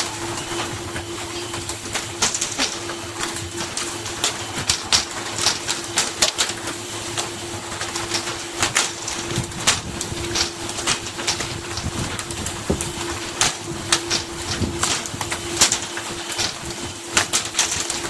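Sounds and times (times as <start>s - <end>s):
boat machinery humming: 0.0s - 18.0s
clicks and clattering knocks: 1.4s - 18.0s.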